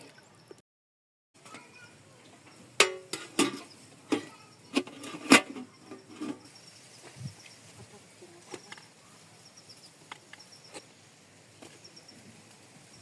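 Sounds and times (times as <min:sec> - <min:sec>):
pots and utensils clinking: 0:02.4 - 0:06.6.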